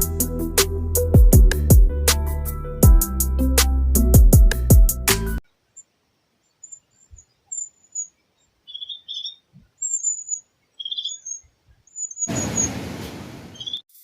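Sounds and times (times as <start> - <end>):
small birds chirping: 5.4 - 12.8, 13.5 - 14.0.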